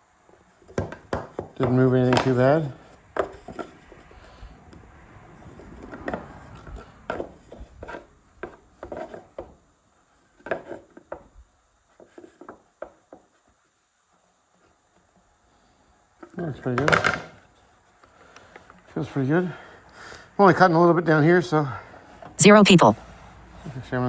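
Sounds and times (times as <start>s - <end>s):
knocks and taps on saw rail: 0.8s - 2.3s.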